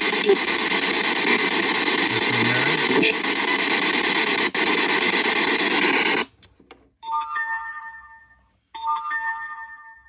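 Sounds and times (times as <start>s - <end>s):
radio static hiss: 0.0s - 6.3s.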